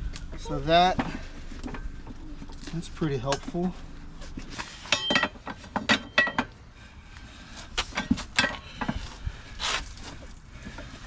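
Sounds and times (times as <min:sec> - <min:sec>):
metal clanks with ringing: 0:04.9 - 0:06.6.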